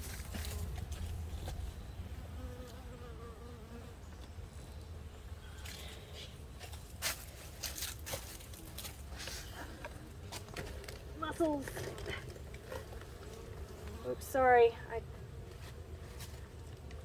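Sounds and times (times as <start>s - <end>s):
bee buzzing: 2.1s - 4.1s.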